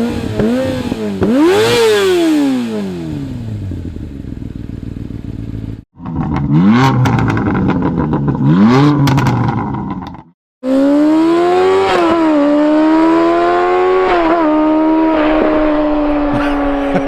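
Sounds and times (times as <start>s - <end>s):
motorcycle engine idling and revving: 0.0s - 17.0s
exhaust crackles and pops: 6.0s - 10.3s.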